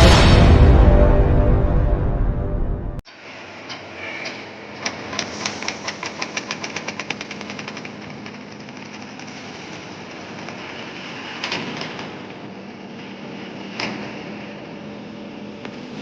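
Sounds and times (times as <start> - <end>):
music: 0.0 - 3.0
rapid even clatter: 4.8 - 12.5
concrete mixer engine running: 5.0 - 16.0.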